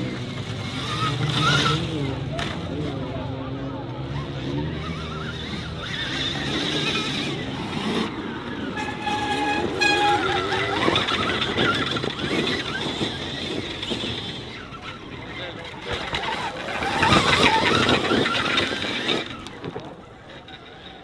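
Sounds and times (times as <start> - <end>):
vehicle noise with wavering whine: 0.0 - 21.0
horn toots: 8.6 - 11.2.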